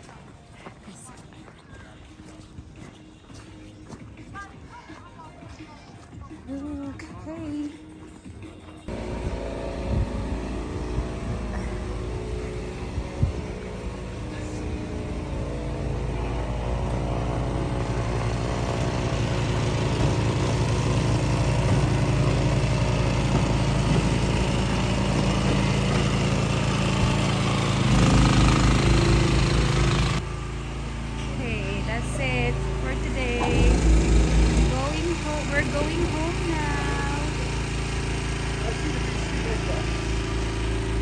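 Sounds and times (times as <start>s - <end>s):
car engine drone: 8.9s - 41.0s.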